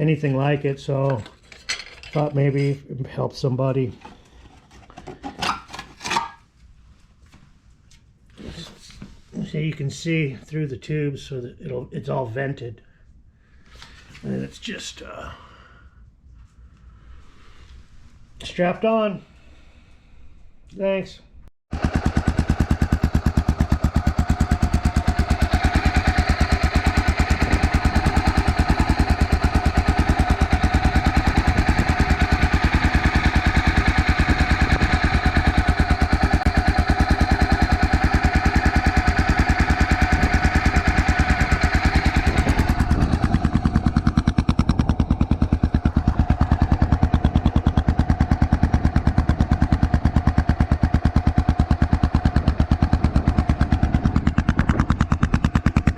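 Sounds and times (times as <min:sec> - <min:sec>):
motorcycle engine idling: 0:21.7 - 0:55.9.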